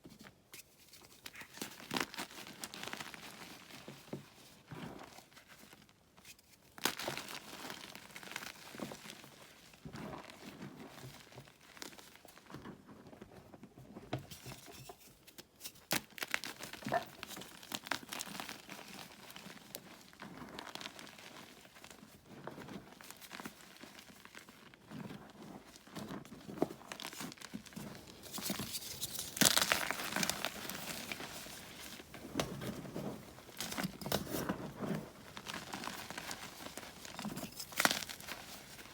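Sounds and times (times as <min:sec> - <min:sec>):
chalk blocks crunching: 0:26.9 - 0:38.9.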